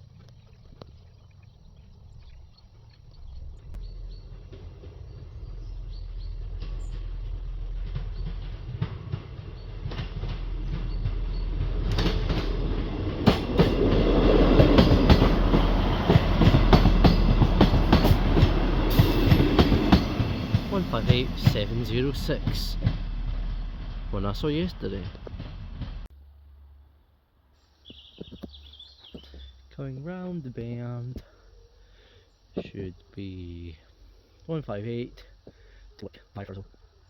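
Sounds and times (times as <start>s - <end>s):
wheels clicking over rail joints: 2.3s - 26.1s
diesel train passing: 3.2s - 26.7s.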